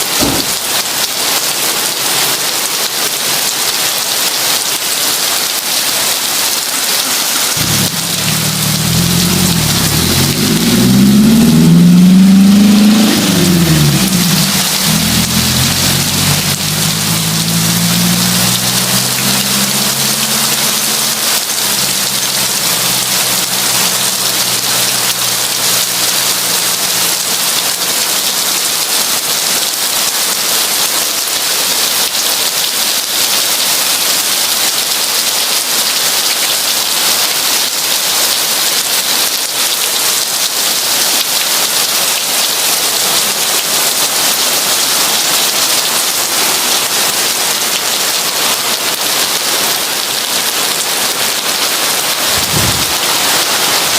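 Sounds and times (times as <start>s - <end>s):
heavy rain hiss: 0.0s - 53.9s
low hum: 7.6s - 24.6s.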